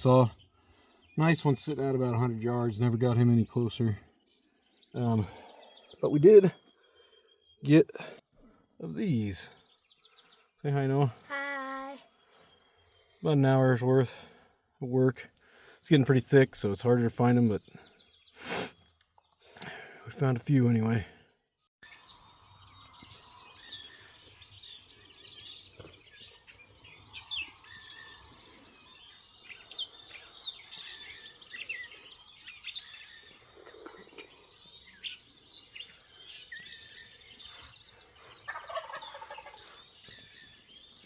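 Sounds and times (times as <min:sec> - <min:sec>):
birds chirping and trilling: 0:00.0 - 0:41.0
turkey gobbling: 0:38.2 - 0:39.9.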